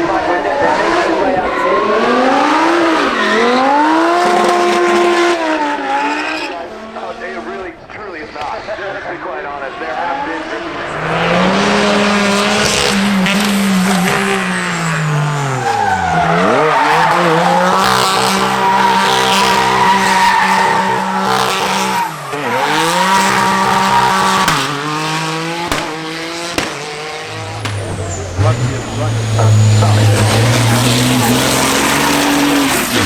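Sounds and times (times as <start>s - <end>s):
car engine at high revs: 0.0s - 7.5s, 10.0s - 33.0s
tyres squealing: 12.7s - 33.0s.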